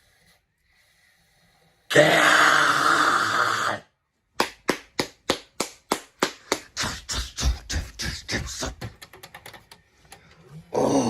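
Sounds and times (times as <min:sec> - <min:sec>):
garbled videotape soundtrack: 0:06.6 - 0:10.7.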